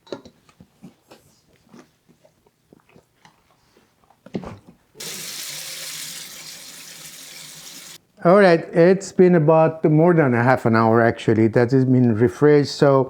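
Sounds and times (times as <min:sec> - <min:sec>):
kitchen tap running: 0:05.0 - 0:08.0.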